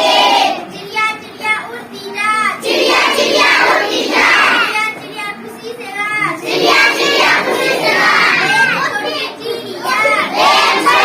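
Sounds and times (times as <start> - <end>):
children singing: 2.6 - 4.7, 6.4 - 9.2, 9.8 - 11.0.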